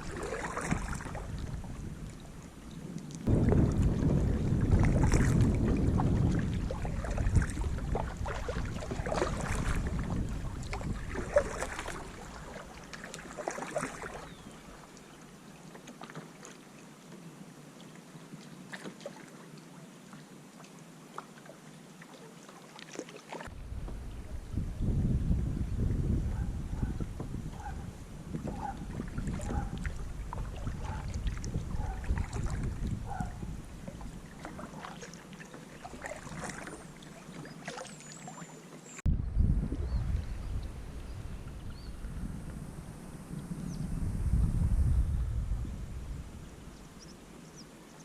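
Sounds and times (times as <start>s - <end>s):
wind rumbling on microphone: 0.0s - 14.8s, 23.5s - 35.1s, 39.0s - 47.7s
paddle splashing in water: 0.0s - 24.4s, 26.4s - 39.1s.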